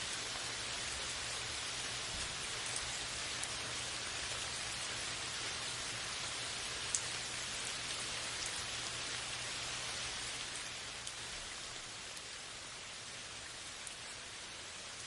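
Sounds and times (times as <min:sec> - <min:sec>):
steady rain: 0:00.0 - 0:15.0
raindrops ticking: 0:06.9 - 0:07.2.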